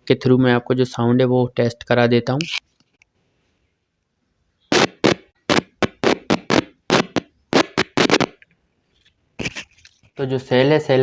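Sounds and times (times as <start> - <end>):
speaker driver popping: 4.7 - 8.5.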